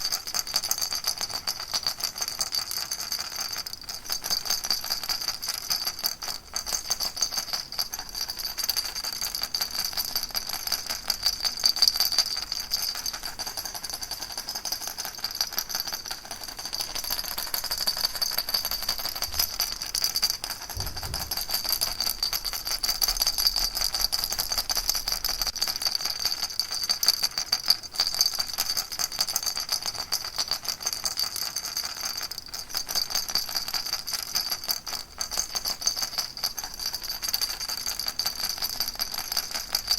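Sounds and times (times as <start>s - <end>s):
baby rattle shaken: 0.0s - 39.9s
low thump: 20.7s - 22.2s.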